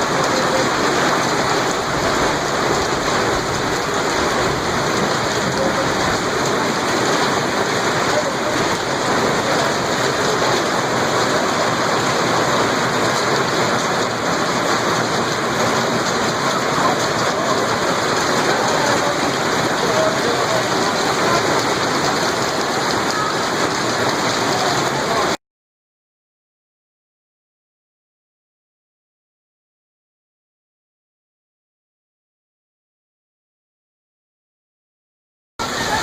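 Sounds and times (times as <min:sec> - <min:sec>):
heavy rain downpour: 0:00.0 - 0:25.4, 0:35.6 - 0:36.0.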